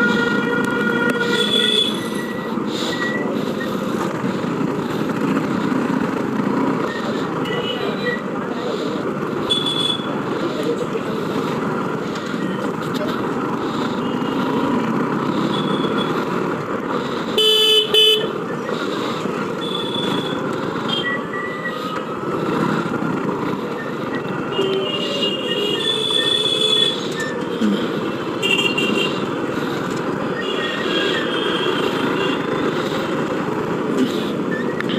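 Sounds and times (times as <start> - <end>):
vehicle horns honking: 0.0 - 2.3, 9.4 - 10.2, 17.4 - 18.4, 24.4 - 27.1, 28.2 - 29.3, 30.4 - 32.6.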